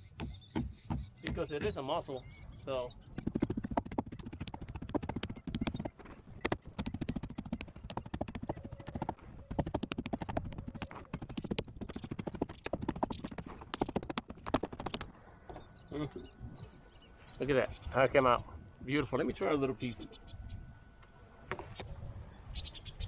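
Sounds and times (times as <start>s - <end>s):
meat tenderizer pounding meat: 3.2s - 15.0s.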